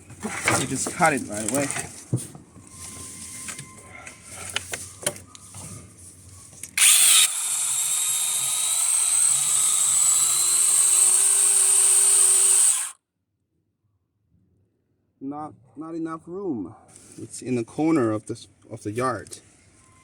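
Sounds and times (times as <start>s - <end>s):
battery chainsaw cutting log: 6.8s - 13.0s.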